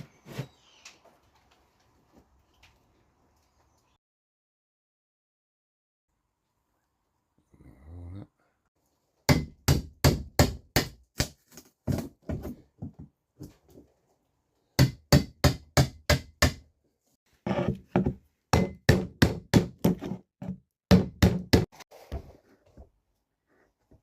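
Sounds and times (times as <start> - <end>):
hammer striking wood: 9.3 - 11.3, 14.8 - 16.6, 17.9 - 21.7.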